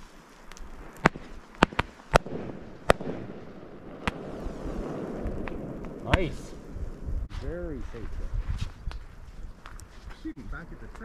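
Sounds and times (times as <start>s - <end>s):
fireworks bangs: 0.6s - 8.4s.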